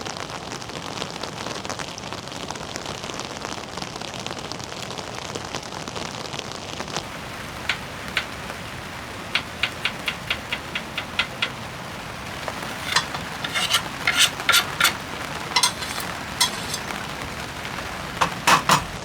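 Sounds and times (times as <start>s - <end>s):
rain hiss: 6.9s - 19.0s
utensils clattering: 9.2s - 19.0s.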